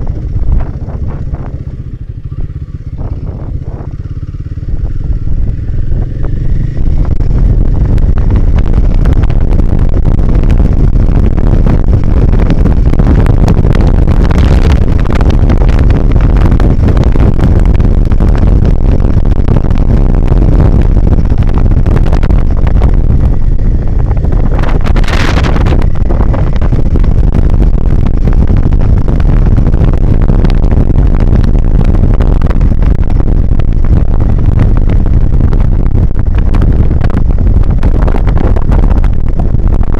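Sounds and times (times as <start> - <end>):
motorcycle engine rumbling: 0.0 - 39.9
wind buffeting on microphone: 0.0 - 39.9.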